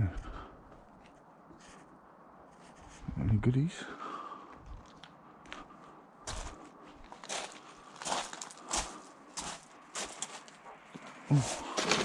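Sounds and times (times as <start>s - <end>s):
rubbish rustling and clattering: 11.3s - 12.0s.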